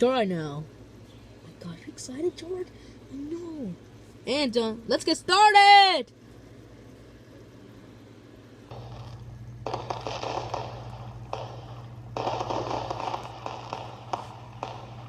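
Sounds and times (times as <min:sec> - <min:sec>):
firework crackling hiss and pops: 0:08.7 - 0:15.0.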